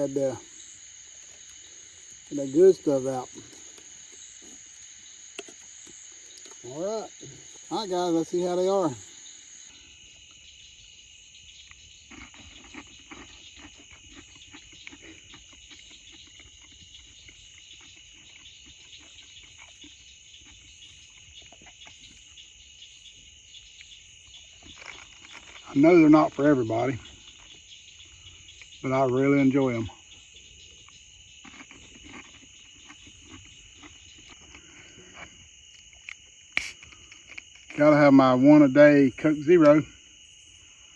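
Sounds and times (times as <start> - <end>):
crickets and night insects chirping: 0.0 - 40.9
person chewing crunchy food: 0.1 - 7.7, 12.1 - 20.0, 30.8 - 37.8.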